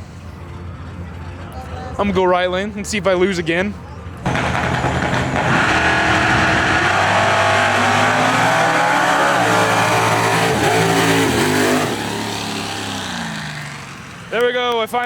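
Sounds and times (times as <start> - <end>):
racing engines at full throttle: 4.3 - 14.6.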